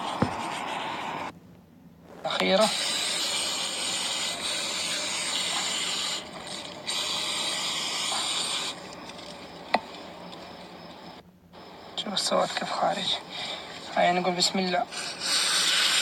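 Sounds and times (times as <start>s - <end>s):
aerosol spray hissing: 2.4s - 8.9s, 14.9s - 16.0s.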